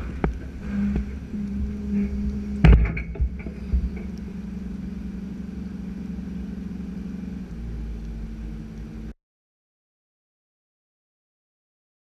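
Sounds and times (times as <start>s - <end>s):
deep engine rumble: 0.0s - 9.2s
excavator diesel engine running: 0.0s - 9.2s.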